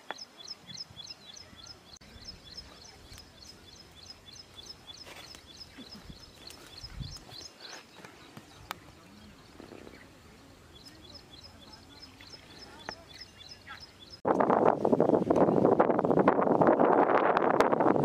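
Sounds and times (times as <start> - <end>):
bird chirping: 0.0 - 14.2
faint outdoor background noise: 0.0 - 18.0.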